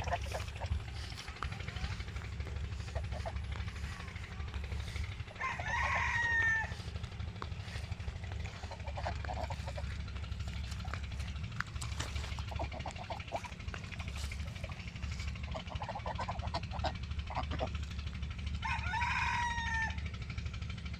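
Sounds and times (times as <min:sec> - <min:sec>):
low rumble: 0:00.0 - 0:20.9
rooster crowing: 0:05.3 - 0:07.0, 0:18.6 - 0:20.1.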